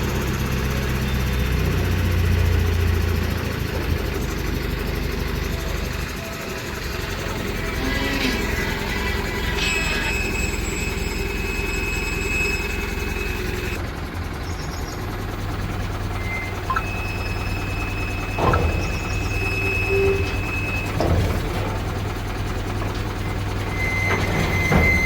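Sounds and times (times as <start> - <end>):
heavy diesel engine running: 0.0 - 25.0
metal clanks: 18.2 - 25.0.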